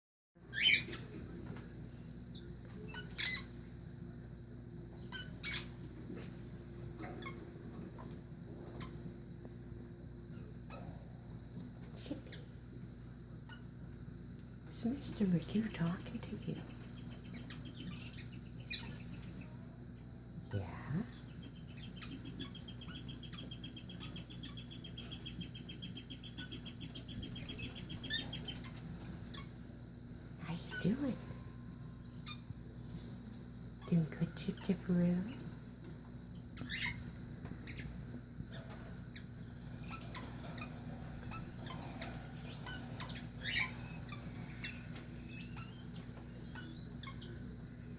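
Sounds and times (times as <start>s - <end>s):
steady low hum: 0.4s - 47.9s
bird chirps and squawks: 0.5s - 1.0s, 5.1s - 5.8s, 39.8s - 47.4s
parrot chirping: 0.5s - 1.3s, 2.3s - 3.7s, 4.9s - 5.9s, 7.0s - 9.1s, 15.4s - 19.6s, 20.6s - 35.6s, 36.3s - 47.7s
faint tweets and clicks: 0.5s - 47.9s.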